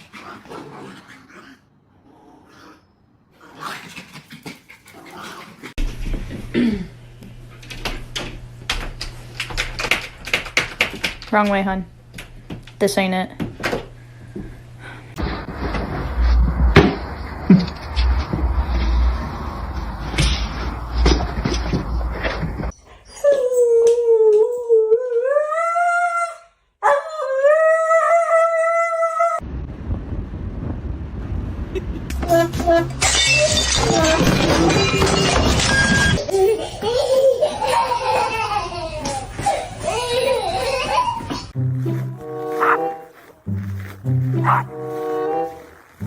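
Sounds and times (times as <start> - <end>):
dog howling: 23.1 - 29.4, 42.6 - 43.1, 44.4 - 44.8
scuffling with knocks: 39.1 - 46.0
dog whining: 42.4 - 45.9
dog whimpering and panting: 42.6 - 43.3, 44.4 - 44.7.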